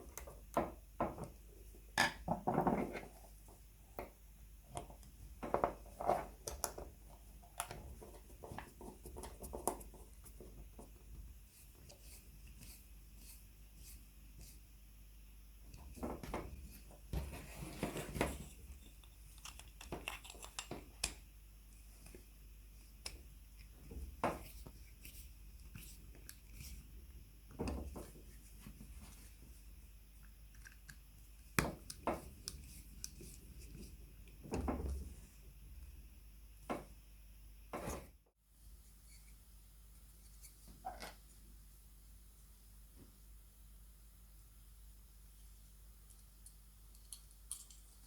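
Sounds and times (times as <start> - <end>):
clicks and taps of small parts: 18.8 - 21.2, 46.1 - 48.0.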